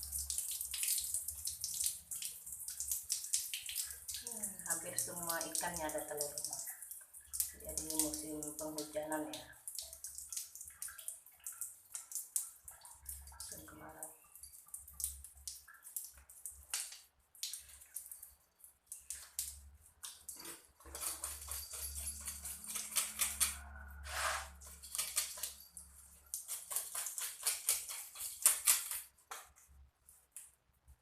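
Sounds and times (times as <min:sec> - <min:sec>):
knife scraping fish: 0:20.4 - 0:25.5, 0:26.4 - 0:29.1.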